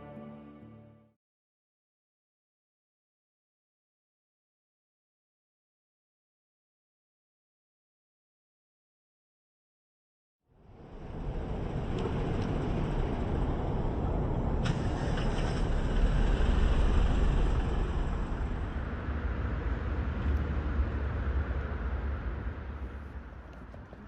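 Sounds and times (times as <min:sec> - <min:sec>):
road traffic rumble: 0:10.7 - 0:24.0.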